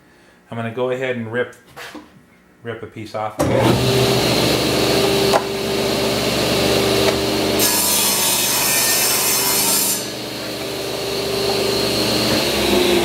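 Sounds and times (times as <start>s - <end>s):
table saw cutting board: 3.4s - 13.0s.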